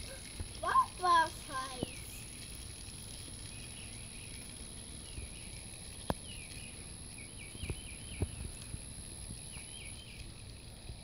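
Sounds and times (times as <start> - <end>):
low wind rumble: 0.0 - 11.0
bird singing: 1.7 - 2.4, 3.3 - 10.6.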